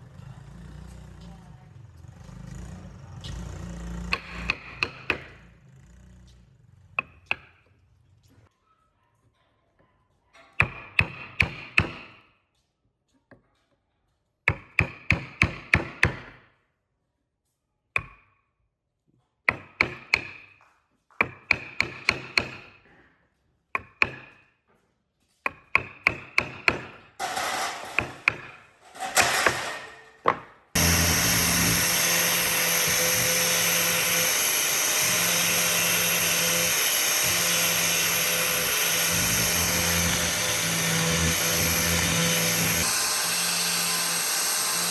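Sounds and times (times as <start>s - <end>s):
electric power tool humming: 30.8s - 44.9s.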